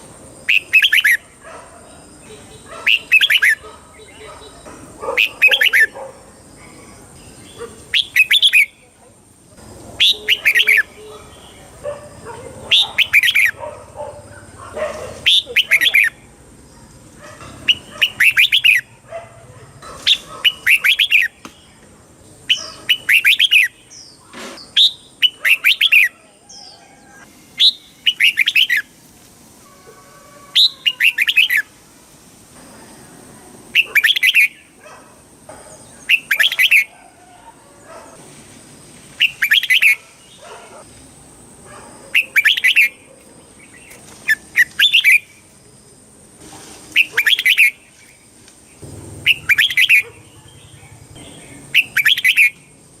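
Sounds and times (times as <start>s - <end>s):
soft bird chirps: 47.0s - 52.7s
bird singing bubbling phrases: 49.2s - 52.6s.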